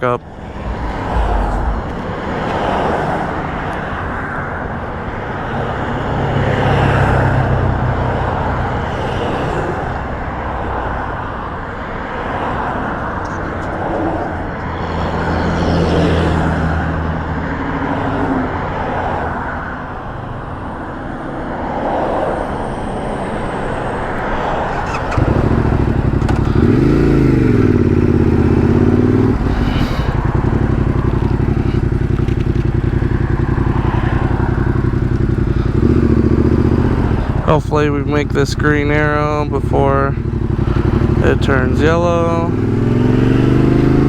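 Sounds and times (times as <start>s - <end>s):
vehicles idling: 0.0s - 44.0s
motorcycle engine starting and revving: 0.2s - 10.2s, 24.0s - 44.0s.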